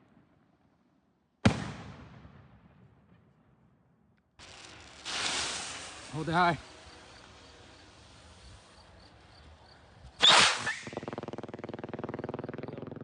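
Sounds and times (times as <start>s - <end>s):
firework rocket whoosh: 4.4s - 11.2s
rapid buzzing crackle: 4.4s - 13.0s.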